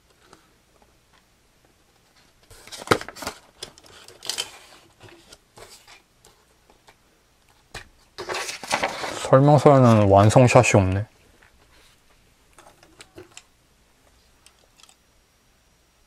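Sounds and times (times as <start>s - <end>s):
plastic clicks and rustling: 2.4s - 5.4s, 12.5s - 13.5s.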